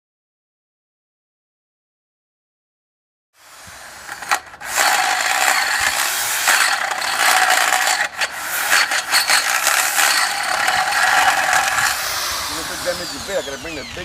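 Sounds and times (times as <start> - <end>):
mechanical ratcheting and grinding: 3.5 - 13.7.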